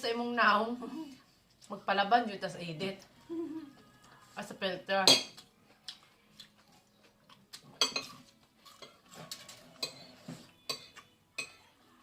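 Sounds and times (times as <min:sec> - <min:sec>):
cutlery clinking on plates: 0:07.8 - 0:11.7.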